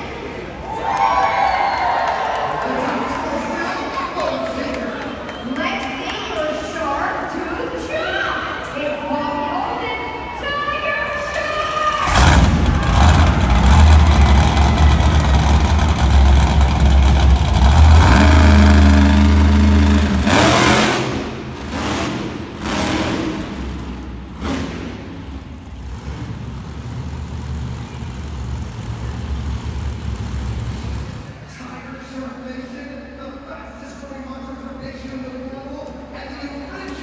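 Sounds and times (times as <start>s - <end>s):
monster truck engine revving: 11.5s - 31.5s.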